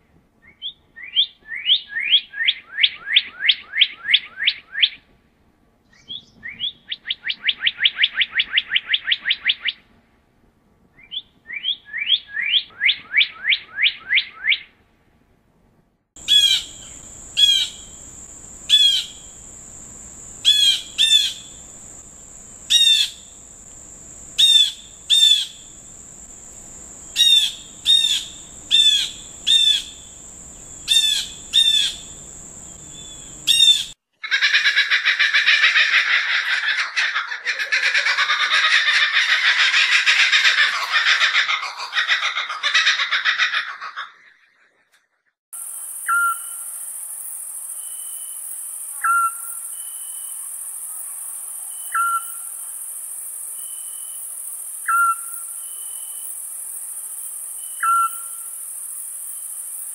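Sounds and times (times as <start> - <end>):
dense chattering birdsong: 16.2 - 34.0
high insect drone: 16.2 - 34.0, 45.6 - 59.9.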